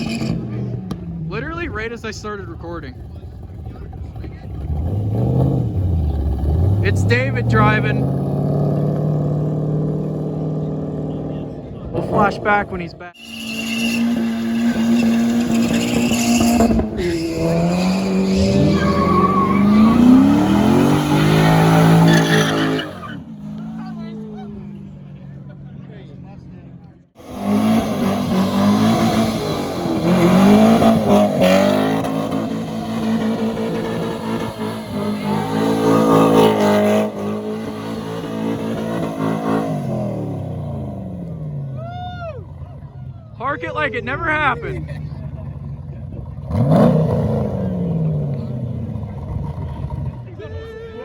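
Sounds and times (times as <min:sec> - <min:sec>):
car engine revving high: 0:00.0 - 0:24.9, 0:27.2 - 0:41.8, 0:43.4 - 0:50.4
tyres squealing: 0:13.2 - 0:23.4.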